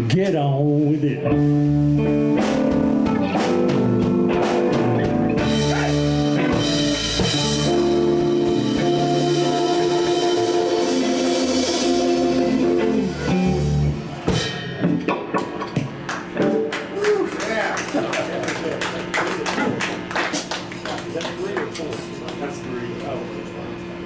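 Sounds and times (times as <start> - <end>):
blues band playing: 0.0 - 20.8
drum taps: 14.9 - 16.7.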